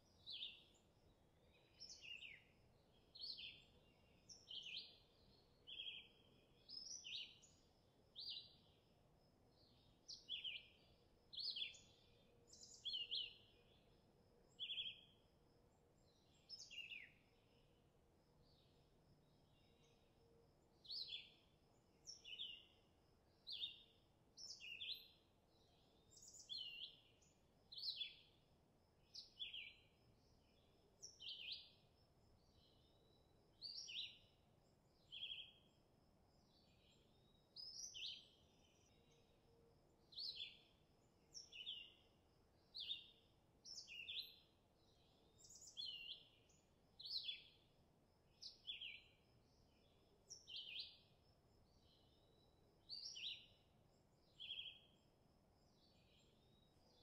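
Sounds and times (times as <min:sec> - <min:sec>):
faint steady background: 0:00.0 - 0:57.0
bird chirping: 0:01.5 - 0:08.8, 0:09.5 - 0:13.8, 0:14.5 - 0:15.2, 0:16.0 - 0:17.2, 0:20.8 - 0:22.8, 0:23.4 - 0:28.4, 0:30.5 - 0:31.8, 0:32.4 - 0:34.4, 0:35.0 - 0:35.7, 0:36.5 - 0:39.3, 0:40.0 - 0:40.6, 0:41.3 - 0:42.0, 0:42.7 - 0:47.6, 0:48.4 - 0:49.2, 0:49.8 - 0:51.1, 0:51.7 - 0:53.6, 0:54.2 - 0:55.0.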